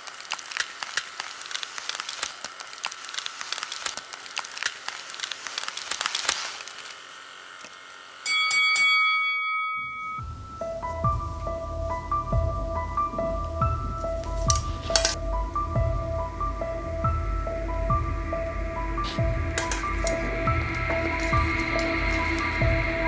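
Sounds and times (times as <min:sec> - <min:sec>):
dense crackling and hissing: 0:00.0 - 0:08.2, 0:10.2 - 0:23.0
bright ringing chime: 0:08.2 - 0:10.6.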